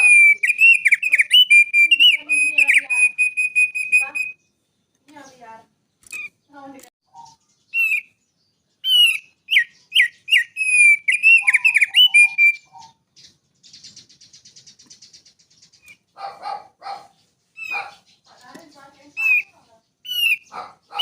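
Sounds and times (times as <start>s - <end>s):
harsh bird chattering: 0.0s - 4.4s, 5.1s - 8.2s, 8.8s - 21.0s
buzzy bird trill: 0.0s - 21.0s
songbird singing: 0.0s - 21.0s.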